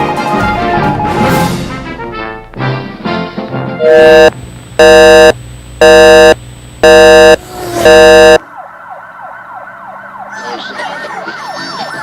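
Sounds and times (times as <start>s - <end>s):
siren wailing: 5.9s - 12.0s.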